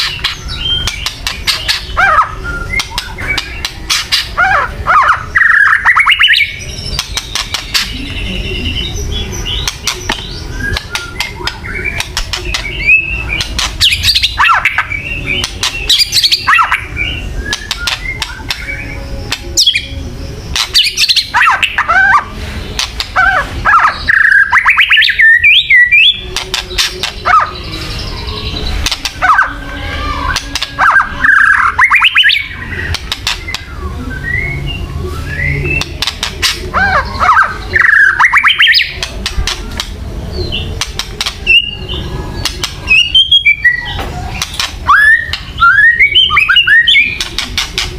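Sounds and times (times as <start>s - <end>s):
bird harsh rattling calls: 0.0s - 7.9s, 9.4s - 16.9s.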